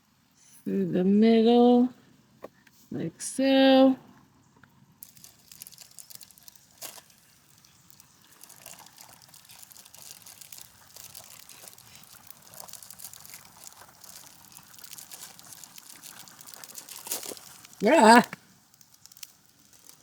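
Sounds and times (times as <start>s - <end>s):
campfire crackling: 4.1s - 20.0s.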